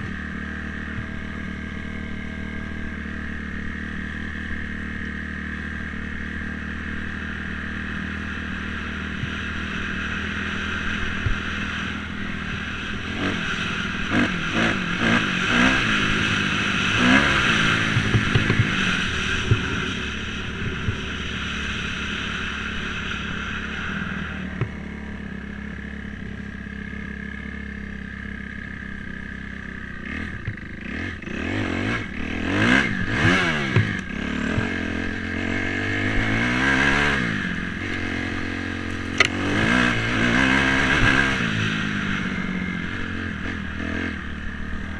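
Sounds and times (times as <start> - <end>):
dirt bike engine revving: 0.0 - 44.9
engine clatter: 0.0 - 44.9.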